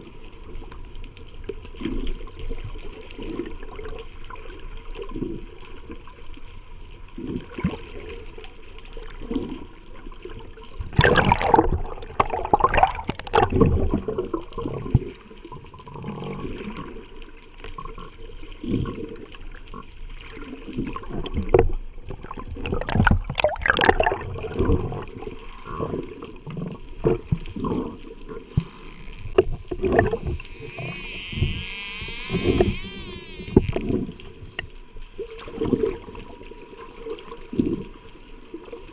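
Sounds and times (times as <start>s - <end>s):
water sloshing and bubbling: 0.0s - 38.9s
high hiss: 28.6s - 33.9s.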